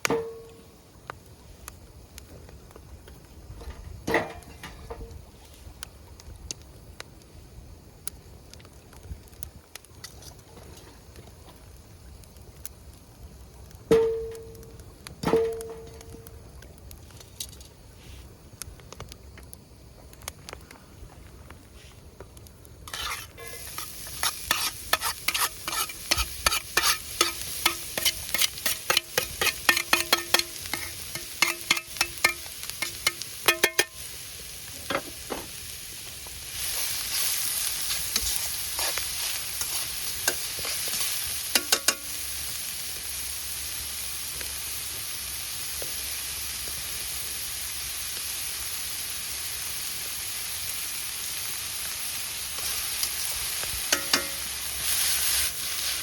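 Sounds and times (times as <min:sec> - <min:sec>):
food sizzling: 0:22.6 - 0:56.0
metal utensil scraping pan: 0:22.9 - 0:34.0, 0:37.9 - 0:42.1, 0:53.9 - 0:56.0.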